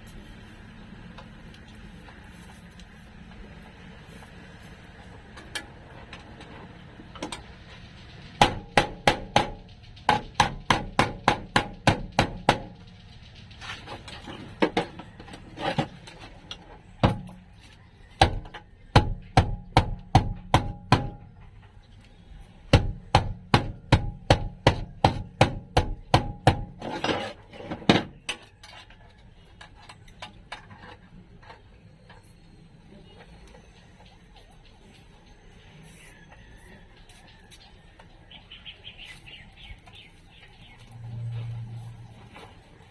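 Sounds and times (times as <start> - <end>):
hammer striking sheet steel: 8.4 - 12.9, 17.0 - 17.4, 18.2 - 21.3, 22.7 - 28.2.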